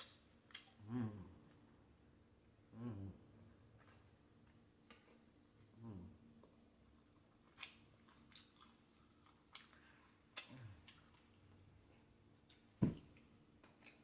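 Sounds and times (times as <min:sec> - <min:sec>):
wet chewing clicks and smacks: 0:00.0 - 0:00.8, 0:06.9 - 0:11.5, 0:12.4 - 0:14.0.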